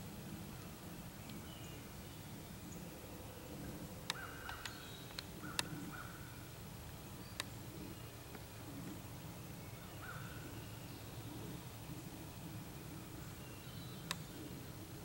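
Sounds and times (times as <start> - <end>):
faint outdoor background: 0.0 - 15.0
bird calls: 1.2 - 15.0
sharp clicks: 4.0 - 5.8.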